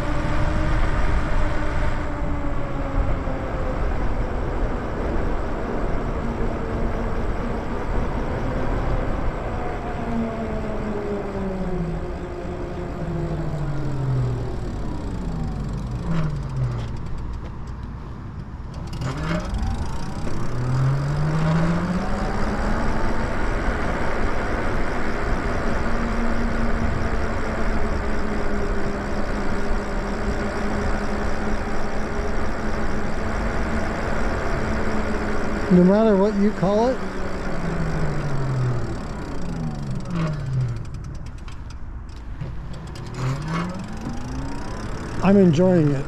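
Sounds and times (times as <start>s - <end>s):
rushing riding noise: 0.0s - 17.4s, 18.7s - 46.0s
electric motor whining: 18.9s - 46.0s.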